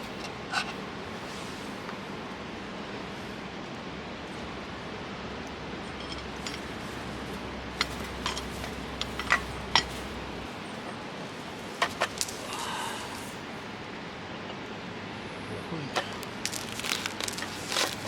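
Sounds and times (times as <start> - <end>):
steady background hiss: 0.0 - 18.0
cookware clinking and tapping: 7.8 - 10.0.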